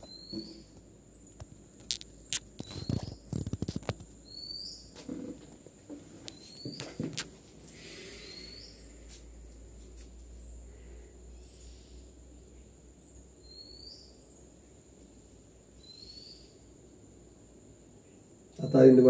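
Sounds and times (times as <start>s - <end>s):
small bird chirping: 0.0s - 5.0s, 6.2s - 7.0s, 7.6s - 9.1s, 11.4s - 14.8s, 15.7s - 16.8s
steady low hum: 0.0s - 19.0s.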